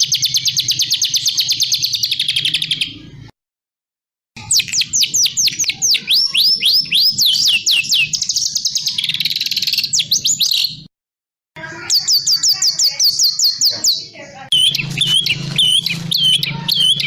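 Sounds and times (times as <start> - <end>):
songbird whistles and trills: 4.4 - 10.8, 11.8 - 17.0.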